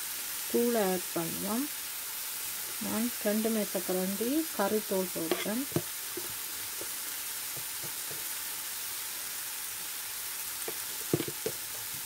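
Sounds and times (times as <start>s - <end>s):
food sizzling in a pan: 0.0s - 12.0s
utensil knocking against pan: 7.6s - 8.3s, 10.7s - 11.6s.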